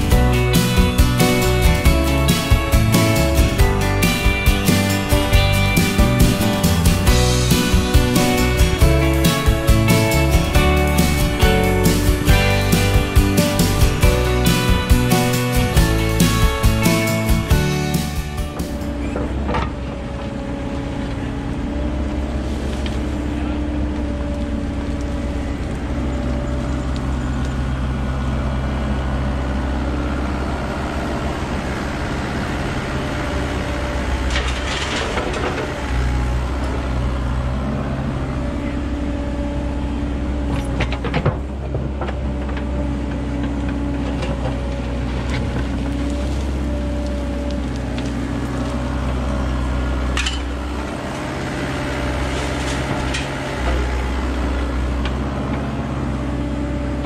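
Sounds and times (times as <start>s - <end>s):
digger diesel engine running: 0.0s - 57.0s.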